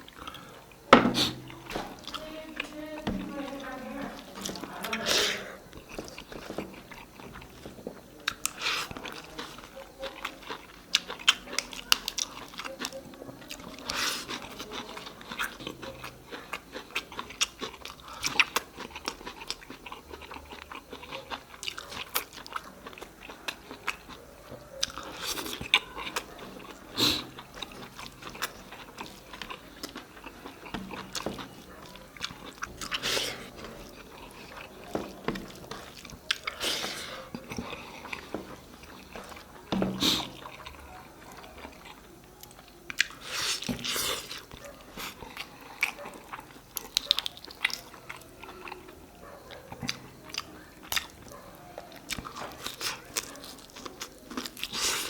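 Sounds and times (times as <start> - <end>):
chewing with moist smacking: 0.0 - 55.0.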